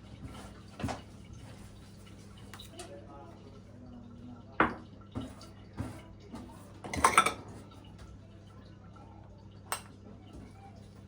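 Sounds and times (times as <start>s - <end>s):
dishes and utensils clinking: 6.8s - 7.6s.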